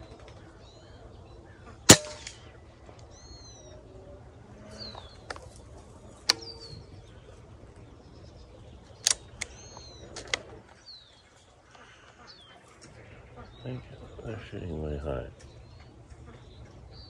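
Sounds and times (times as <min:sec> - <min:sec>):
small birds chirping: 0:00.0 - 0:17.0
sharp clicks: 0:09.0 - 0:10.4.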